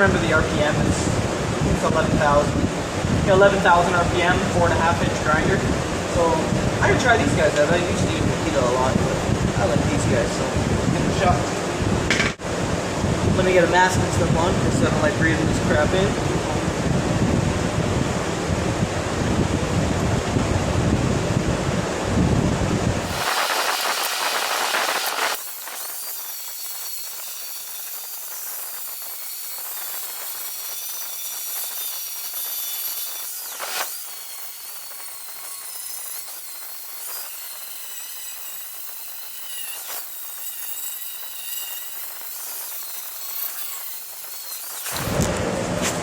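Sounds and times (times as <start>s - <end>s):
angle grinder grinding metal: 23.0s - 45.4s.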